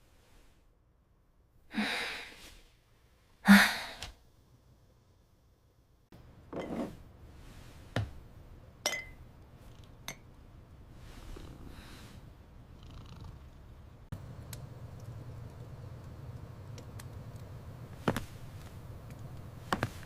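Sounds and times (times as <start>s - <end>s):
cat purring: 9.6s - 10.0s, 10.9s - 14.1s.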